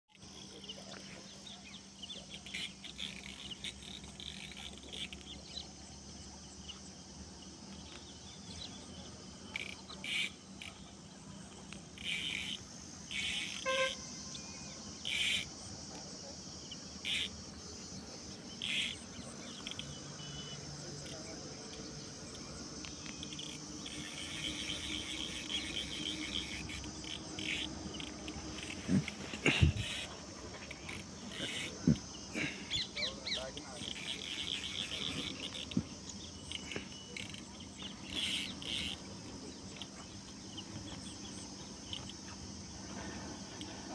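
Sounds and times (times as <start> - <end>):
insects chirring: 0.1 - 43.9.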